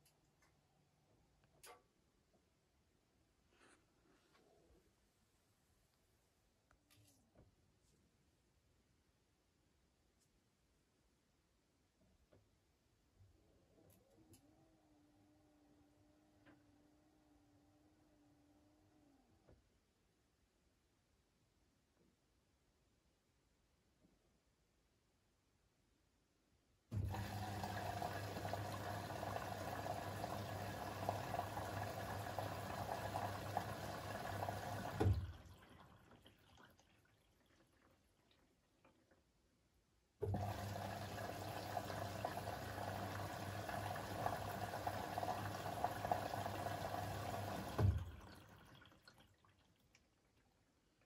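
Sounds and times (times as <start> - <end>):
washing machine water rushing: 26.9 - 37.9, 40.2 - 49.7.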